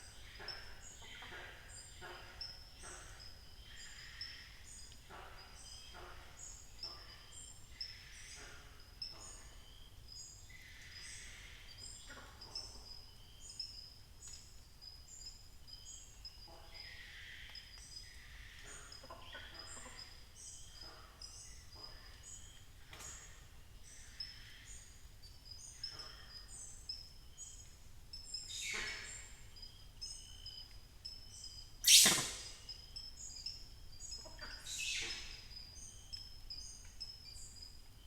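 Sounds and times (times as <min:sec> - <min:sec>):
short high bird note: 0:31.8 - 0:32.6.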